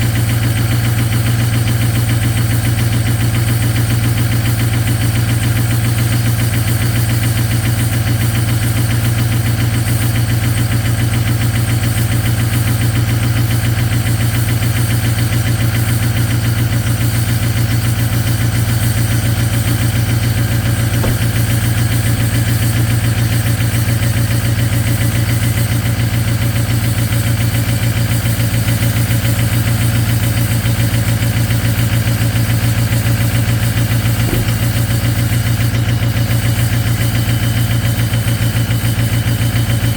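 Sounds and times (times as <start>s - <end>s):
diesel engine idling: 13.9s - 39.9s.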